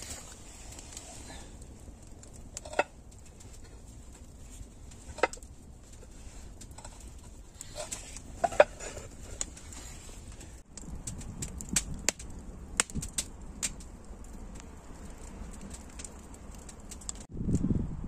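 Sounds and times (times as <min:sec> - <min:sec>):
sharp cracks: 0:10.7 - 0:17.6.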